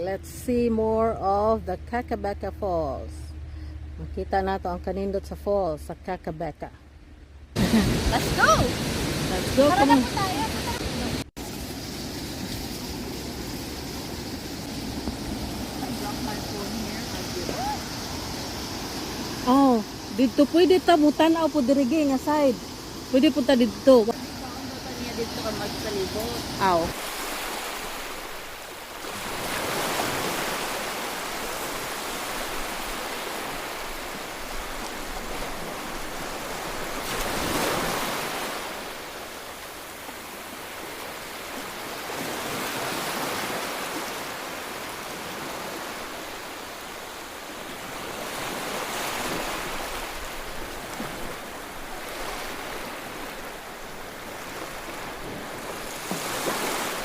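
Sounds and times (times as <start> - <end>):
waterfall rushing: 7.6 - 35.3.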